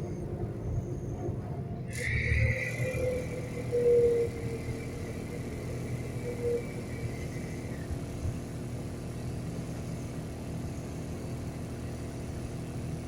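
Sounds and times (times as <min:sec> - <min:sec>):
passenger train rumbling: 0:00.0 - 0:13.0.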